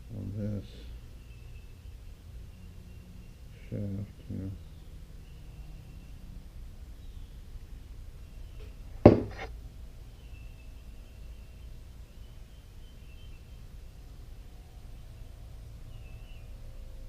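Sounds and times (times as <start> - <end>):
knocks of parts on workbench: 9.1 - 9.5.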